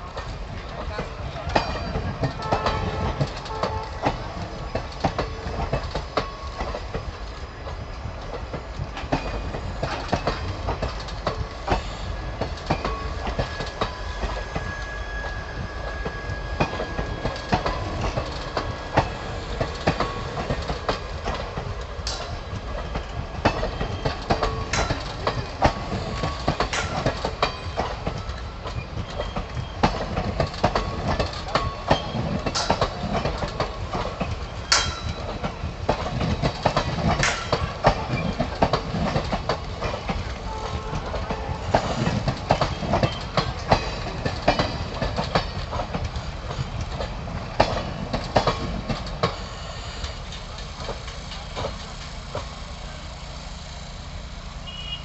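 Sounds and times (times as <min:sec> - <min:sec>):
train rumbling on rails: 0:00.0 - 0:55.0
sharp metallic clanks: 0:34.7 - 0:35.5.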